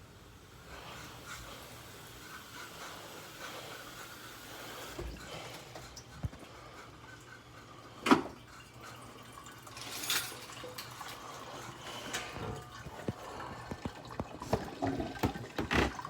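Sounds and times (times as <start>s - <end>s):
liquid splashing and trickling: 5.0s - 16.0s.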